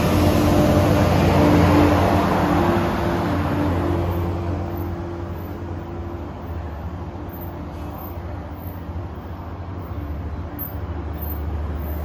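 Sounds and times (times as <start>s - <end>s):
passenger train rumbling past: 0.0s - 12.0s.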